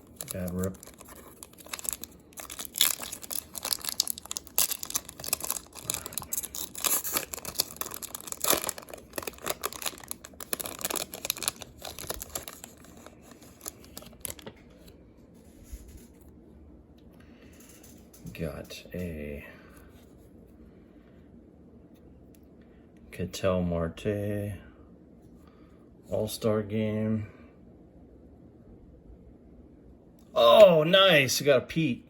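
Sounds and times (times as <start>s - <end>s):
foil wrapper tearing and crinkling: 0.0s - 14.5s.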